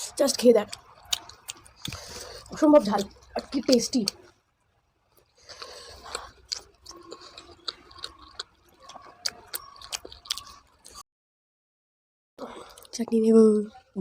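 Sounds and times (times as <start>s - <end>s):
chewing: 0.0s - 11.0s, 12.4s - 13.1s
wet mouth clicks and lip smacks: 0.7s - 4.3s.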